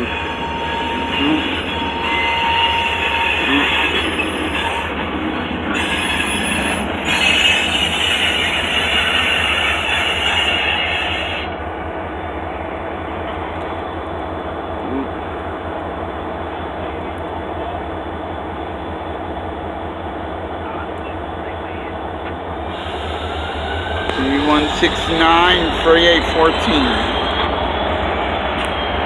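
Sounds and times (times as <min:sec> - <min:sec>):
thin wheel squeal: 0:00.0 - 0:11.6, 0:22.7 - 0:28.9
freight train rumbling on track: 0:00.0 - 0:29.0.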